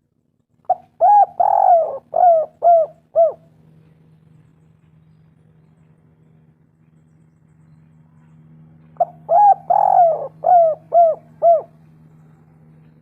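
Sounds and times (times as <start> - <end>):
steady low hum: 0.0 - 13.0
dove cooing: 0.7 - 3.5, 9.0 - 11.9.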